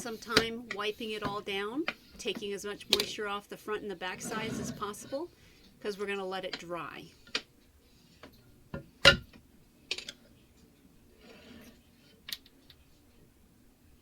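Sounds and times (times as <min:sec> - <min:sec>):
soft rub: 0:04.0 - 0:05.6.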